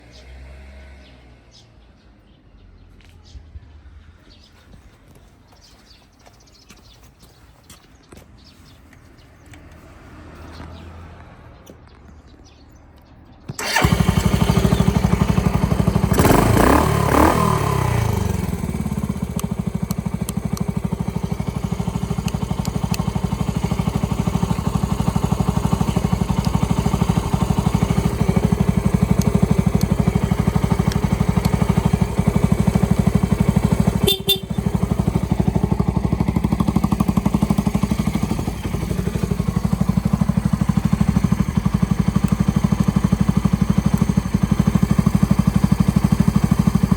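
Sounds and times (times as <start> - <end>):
motorcycle engine starting and idling: 9.4 - 46.9.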